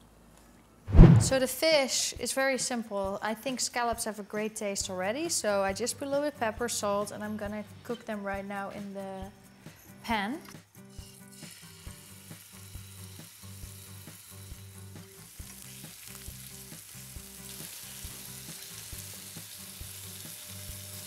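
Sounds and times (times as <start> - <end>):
scallops sizzling in a frying pan: 11.1 - 21.0.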